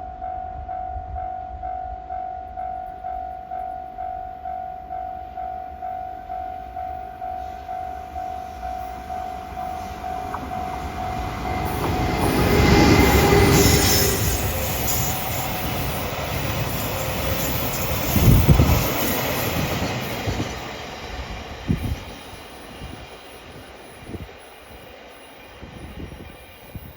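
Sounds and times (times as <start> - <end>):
level-crossing bell dinging: 0.0 - 20.7
train passing with wheel clatter: 0.0 - 26.9.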